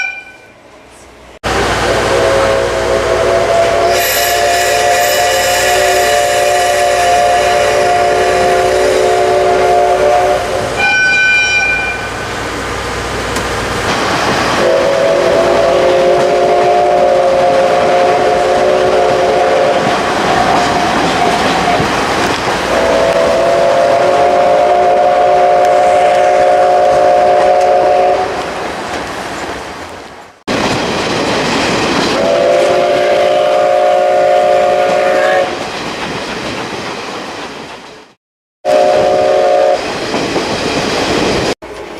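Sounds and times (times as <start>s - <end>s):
train rushing noise: 0.8s - 41.9s
steam locomotive whistle blasts: 1.8s - 12.2s, 14.6s - 21.4s, 22.7s - 28.4s, 32.2s - 35.6s, 38.6s - 39.8s
high thin toot: 2.1s - 12.1s.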